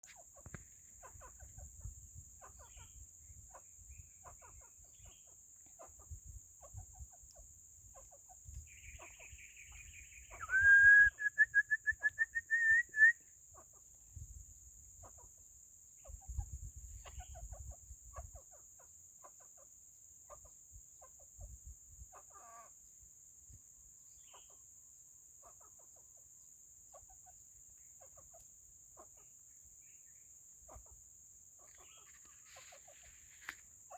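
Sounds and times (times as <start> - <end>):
junglefowl clucking: 31.6 - 33.9.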